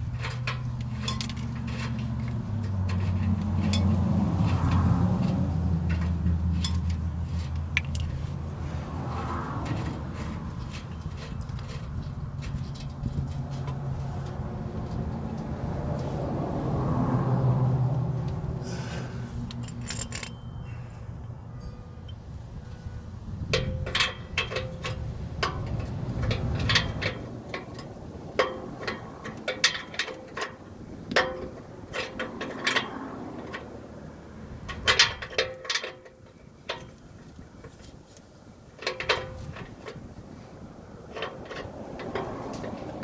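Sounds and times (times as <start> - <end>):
hand tools clinking on metal: 0.0 - 8.4, 18.7 - 22.9, 23.5 - 33.9, 34.5 - 43.0.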